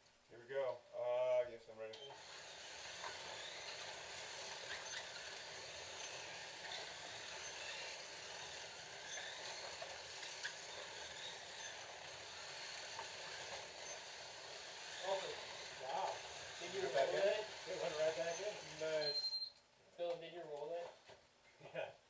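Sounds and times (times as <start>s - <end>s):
whir of small electric motors: 2.0s - 19.5s.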